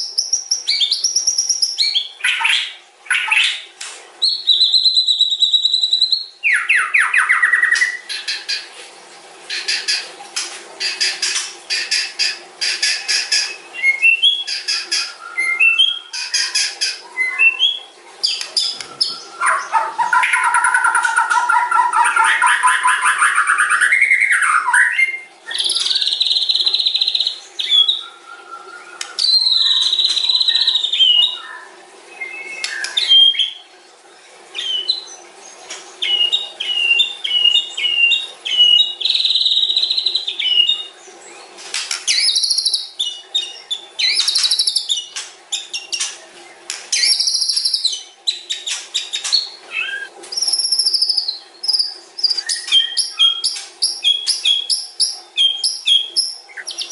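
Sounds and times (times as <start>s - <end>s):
songbird whistling and trilling: 4.2s - 8.1s, 13.4s - 33.6s, 34.6s - 35.2s, 36.0s - 40.9s, 42.1s - 46.1s, 46.9s - 56.9s.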